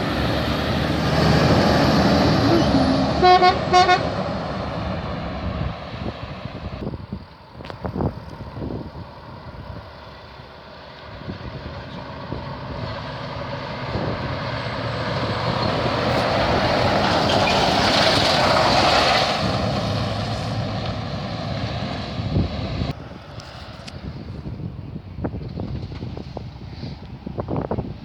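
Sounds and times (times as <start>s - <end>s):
heavy truck driving past: 0.0s - 6.8s, 9.9s - 24.2s.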